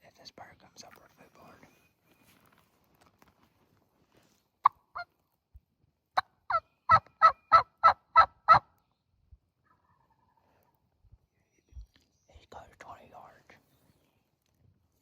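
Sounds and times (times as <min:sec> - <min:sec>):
turkey yelping: 0:06.5 - 0:08.7.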